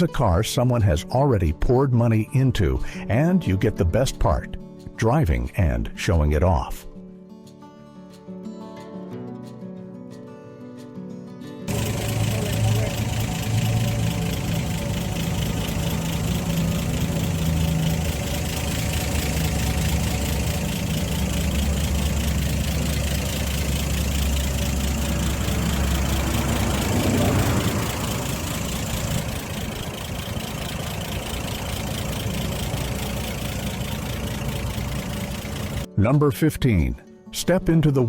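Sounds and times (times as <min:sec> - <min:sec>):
car engine idling: 0:11.7 - 0:35.9.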